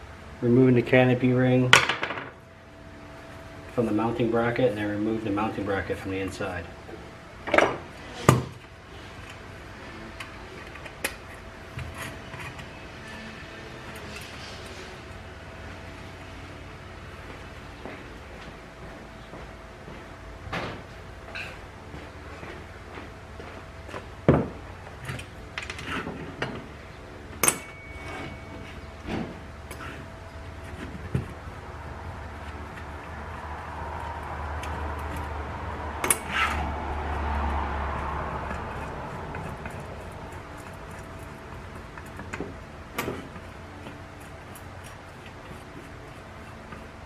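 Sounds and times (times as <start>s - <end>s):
metallic ring: 27.4s - 29.0s.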